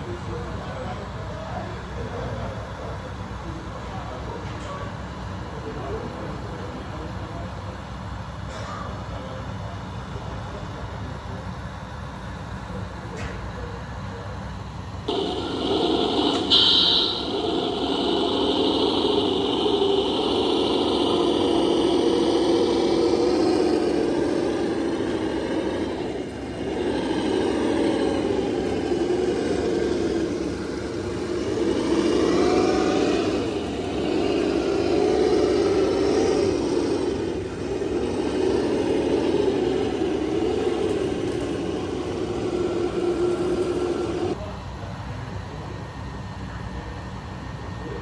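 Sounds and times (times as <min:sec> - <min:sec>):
steady background noise: 0:00.0 - 0:48.0
model machine motor whining: 0:15.1 - 0:44.4.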